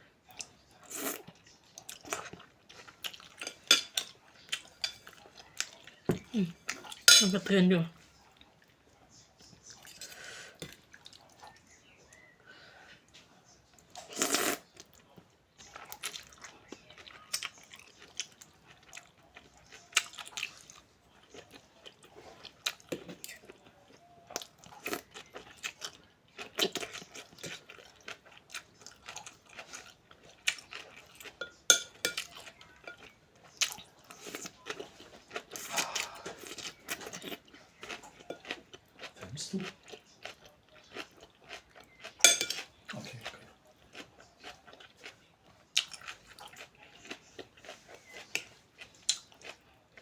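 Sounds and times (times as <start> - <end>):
crunchy chewing: 13.8 - 50.0.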